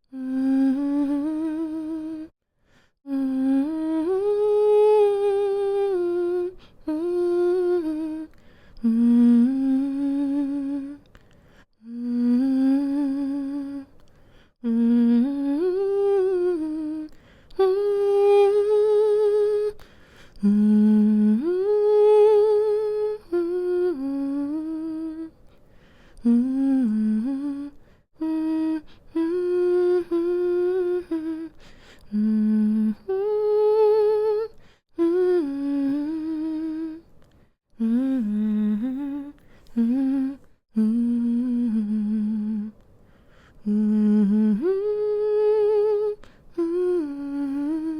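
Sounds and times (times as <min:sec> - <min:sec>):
woman humming lullaby: 0:37.8 - 0:42.7.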